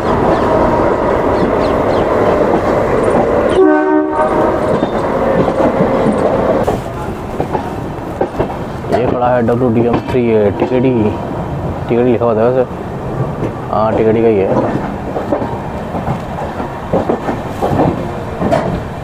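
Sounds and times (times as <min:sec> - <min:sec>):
train wheels clattering on track: 0:00.0 - 0:19.0
locomotive horn blast: 0:03.5 - 0:04.6.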